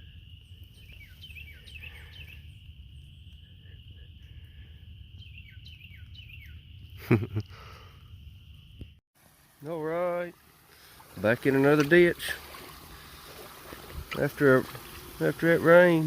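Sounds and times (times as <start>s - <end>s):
songbird chirping: 0.0s - 9.0s.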